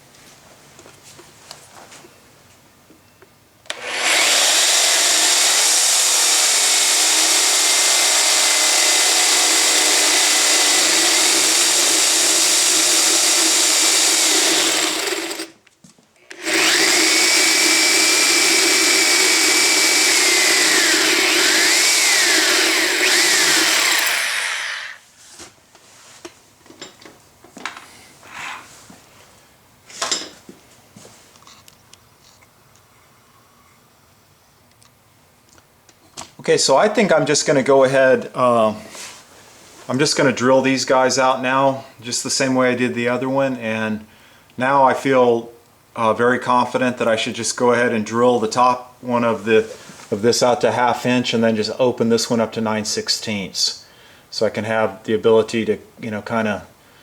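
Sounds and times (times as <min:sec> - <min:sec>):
electric drill whining: 0:03.7 - 0:15.6, 0:16.3 - 0:25.0.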